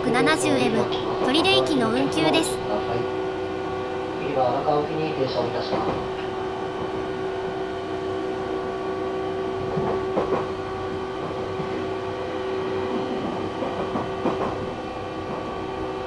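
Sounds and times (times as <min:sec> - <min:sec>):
constant hum: 0:00.0 - 0:14.7
train running noise: 0:00.0 - 0:16.0
rail clatter: 0:05.5 - 0:07.0, 0:09.6 - 0:12.0, 0:12.8 - 0:15.7.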